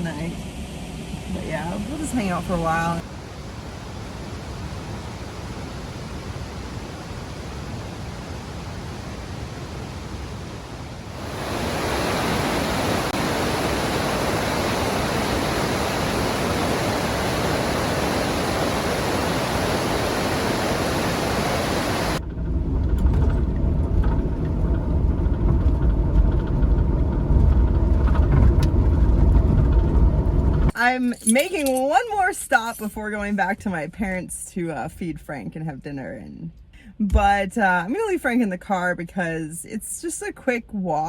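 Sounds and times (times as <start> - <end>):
road noise inside moving van: 0.0 - 3.0, 16.1 - 30.8
rushing river water: 2.9 - 22.2.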